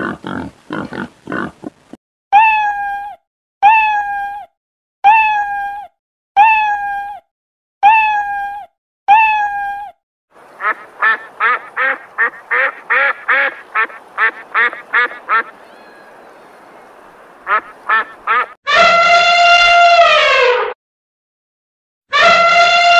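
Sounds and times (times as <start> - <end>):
waterfowl honking and quacking: 10.4 - 18.6.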